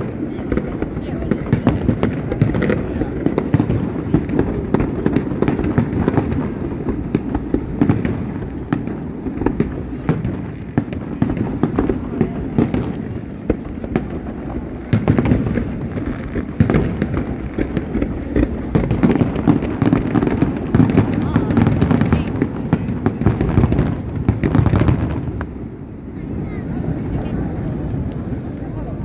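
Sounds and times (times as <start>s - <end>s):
fireworks bangs and crackles: 0.0s - 29.0s
fireworks hiss: 1.6s - 21.8s.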